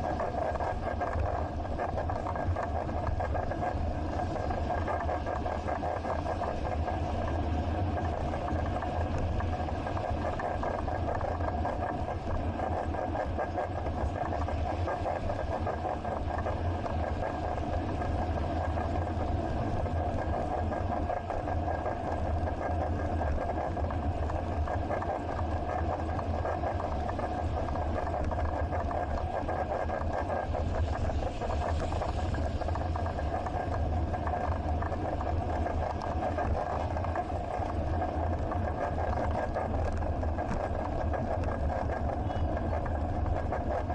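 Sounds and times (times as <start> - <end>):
faint steady whine: 0.0 - 43.9.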